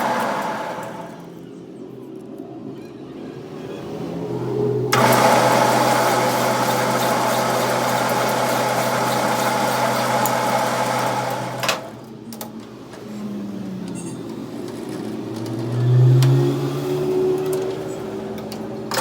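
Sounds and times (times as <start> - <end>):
workshop machine hissing and humming: 0.0 - 1.4, 4.9 - 15.3, 16.6 - 19.0
quiet motor sound: 0.0 - 1.5, 4.9 - 15.2.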